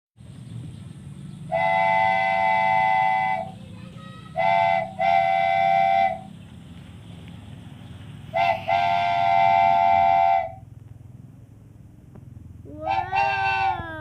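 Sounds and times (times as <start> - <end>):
steady low hum: 0.2 - 14.0
toy train horn blasts: 1.5 - 3.6, 4.4 - 6.3, 8.4 - 10.6, 12.8 - 14.0.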